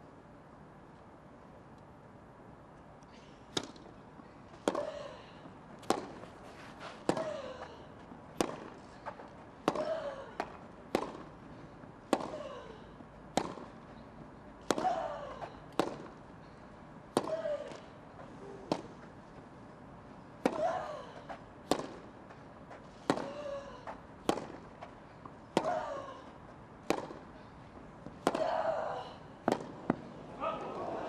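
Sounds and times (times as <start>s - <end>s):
rackets striking tennis ball: 3.5s - 4.0s, 4.6s - 16.2s, 17.1s - 19.1s, 20.4s - 25.9s, 26.8s - 27.4s, 28.0s - 28.8s, 29.4s - 30.8s.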